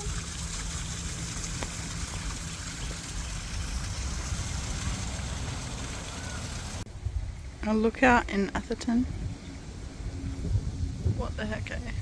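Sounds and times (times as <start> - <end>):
constant hiss: 0.0 - 12.0
heavy low rumble: 0.0 - 12.0.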